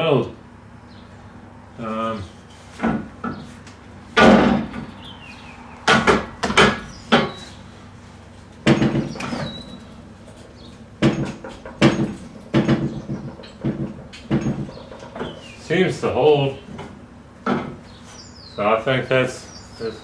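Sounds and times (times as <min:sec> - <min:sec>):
metal clanks on steel frame: 0:02.7 - 0:15.7, 0:16.6 - 0:18.5.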